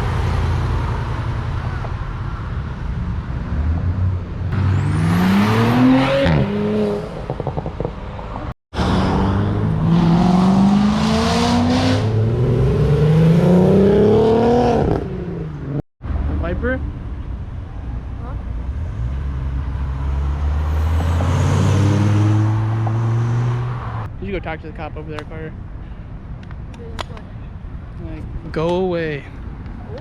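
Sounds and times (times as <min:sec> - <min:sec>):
cars accelerating hard: 0:03.3 - 0:15.8, 0:18.8 - 0:24.1.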